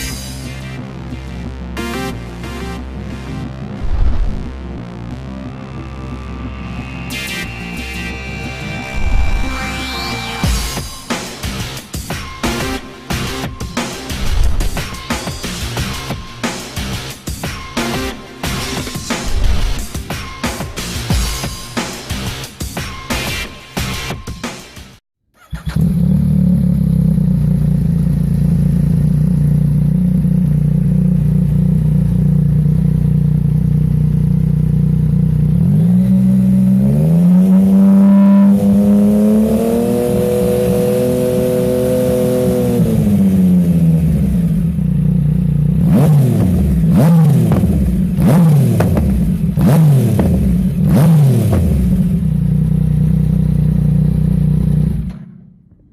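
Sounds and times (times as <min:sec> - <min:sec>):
motorcycle engine idling and revving: 0:00.0 - 0:55.9
engine throttle blips: 0:01.8 - 0:11.0.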